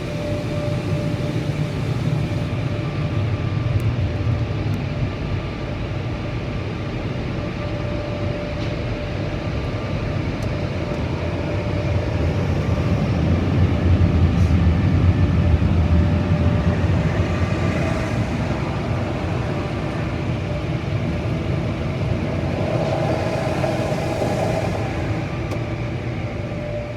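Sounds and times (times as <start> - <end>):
car wash machinery rumble: 0.0 - 7.9, 8.6 - 26.9
faint whine: 7.0 - 26.9.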